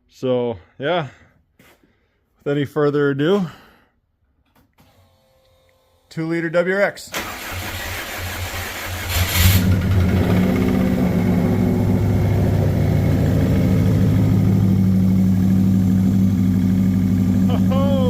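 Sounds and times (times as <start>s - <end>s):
engine starter cranking: 7.1s - 10.0s
engine running: 9.1s - 18.0s.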